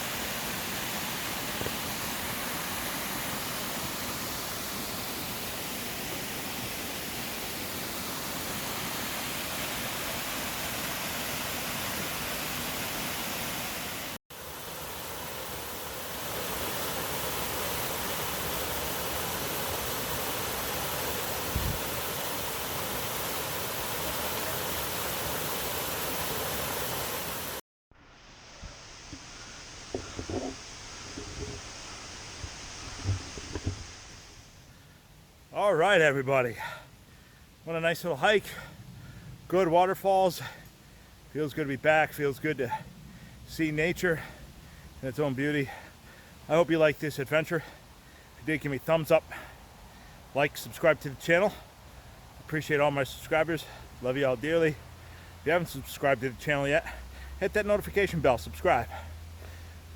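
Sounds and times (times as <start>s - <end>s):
water rushing over rocks: 0.0s - 27.6s, 28.6s - 34.6s
quiet woodland background: 0.0s - 59.9s.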